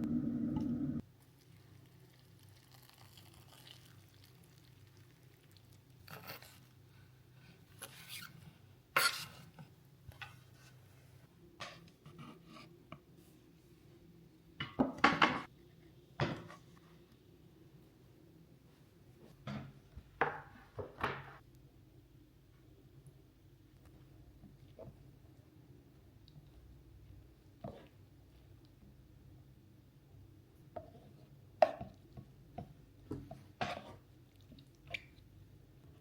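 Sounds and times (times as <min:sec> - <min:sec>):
faint steady hum: 0:00.0 - 0:02.7.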